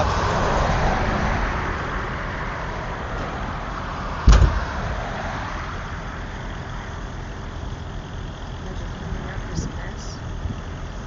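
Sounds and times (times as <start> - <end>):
roadway rumble: 0.0 - 11.0
sharp loud bang: 4.2 - 4.8.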